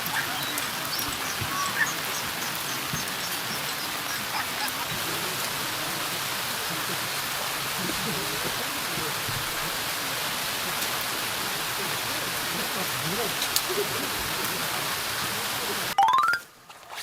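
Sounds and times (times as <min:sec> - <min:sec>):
low voices murmuring: 0:00.0 - 0:16.0.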